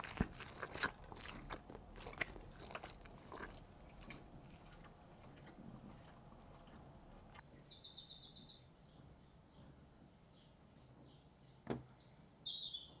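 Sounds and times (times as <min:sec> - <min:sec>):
songbird trilling and chirping: 0:07.4 - 0:13.0.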